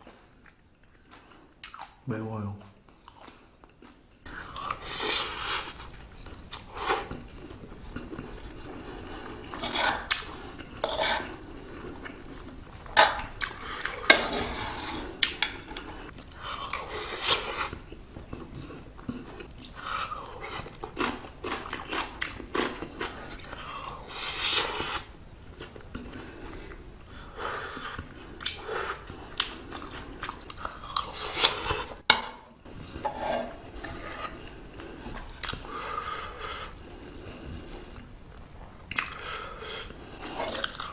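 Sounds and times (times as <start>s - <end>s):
chewing and biting: 14.8s - 24.0s, 38.8s - 40.9s.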